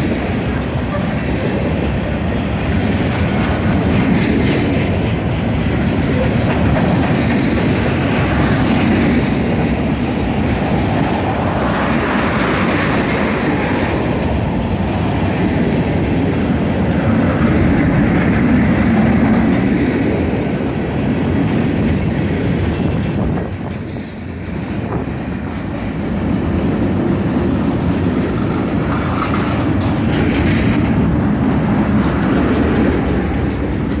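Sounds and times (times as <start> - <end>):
diesel locomotive passing close: 0.0 - 34.0
freight train wheels clattering: 0.0 - 34.0.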